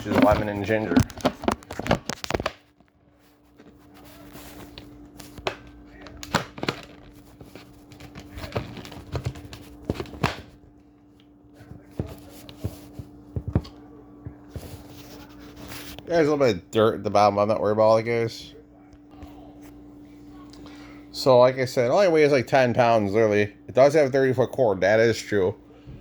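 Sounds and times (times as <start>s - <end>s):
clicks and knocks of handling: 0.0s - 2.9s.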